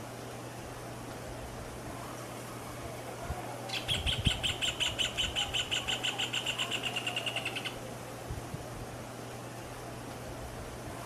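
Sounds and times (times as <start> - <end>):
bird singing ringing notes: 3.7 - 7.8.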